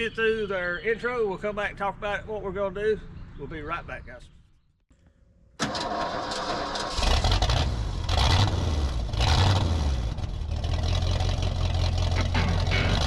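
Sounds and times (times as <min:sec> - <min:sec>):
engine running and revving: 0:06.8 - 0:13.0.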